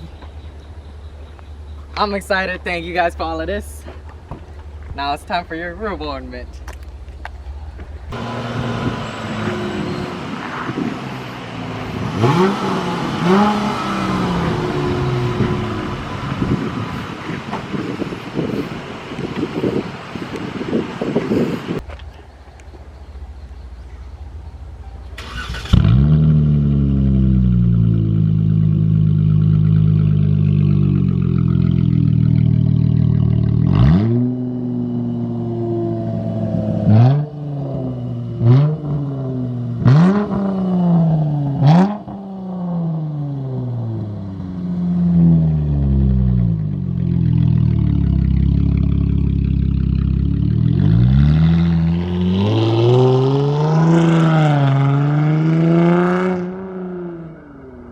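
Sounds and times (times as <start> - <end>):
car engine idling and revving: 0.0 - 57.9
car engine cranking and starting: 6.8 - 35.4.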